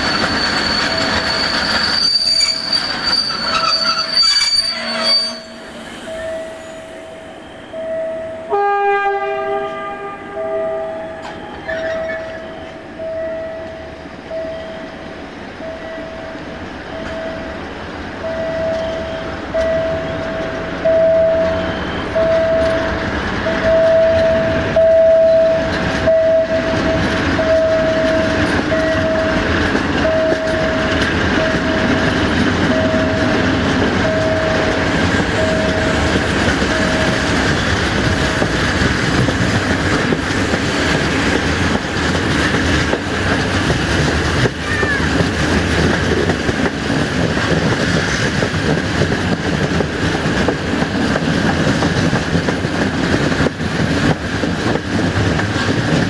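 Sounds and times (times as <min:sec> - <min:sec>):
level-crossing warning beeps: 0:00.0 - 0:08.5, 0:11.0 - 0:17.6, 0:18.2 - 0:37.8
train wheels on rail: 0:00.0 - 0:56.0.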